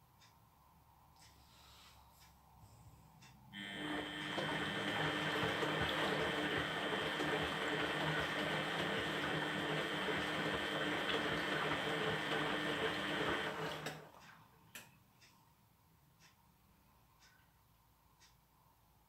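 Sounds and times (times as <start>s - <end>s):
washing machine humming: 3.5s - 14.8s
faint clicks: 17.2s - 17.6s.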